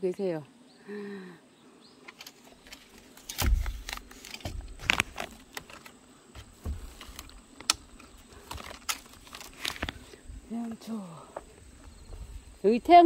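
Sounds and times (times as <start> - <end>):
footsteps thumping: 6.4 - 7.1
sharp clicks and crackles: 7.0 - 10.0.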